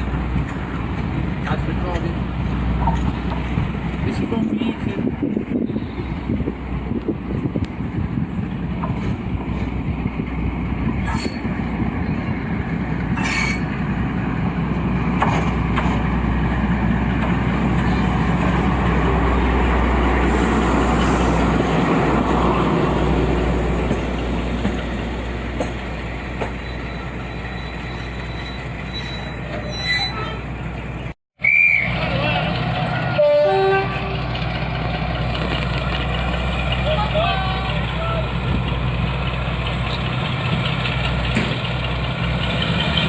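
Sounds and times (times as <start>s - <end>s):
wheels clicking over rail joints: 0.0s - 4.9s, 34.2s - 43.0s
diesel locomotive droning past: 0.0s - 43.0s
faint thin squeal: 26.6s - 30.4s.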